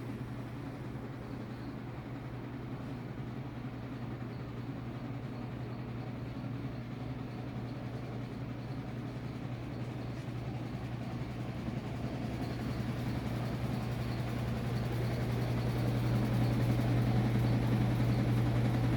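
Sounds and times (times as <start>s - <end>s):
low engine hum: 10.1s - 18.9s.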